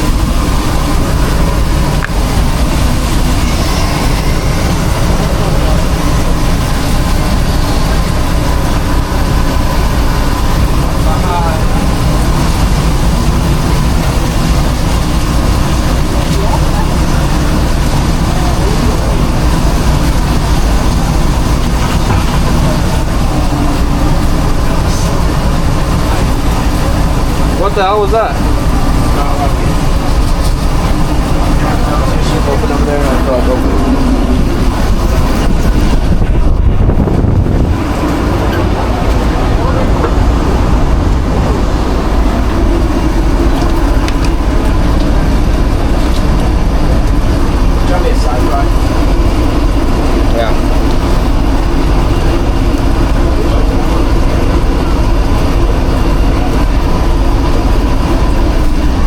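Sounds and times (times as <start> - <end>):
kitchen machinery rumble: 0.0 - 59.0
loud mechanical drone: 0.0 - 59.0.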